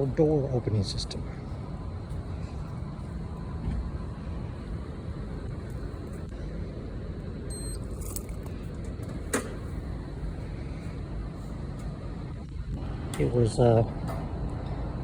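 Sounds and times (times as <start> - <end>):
low outdoor rumble: 0.0 - 15.0
automatic door closing: 8.9 - 9.7.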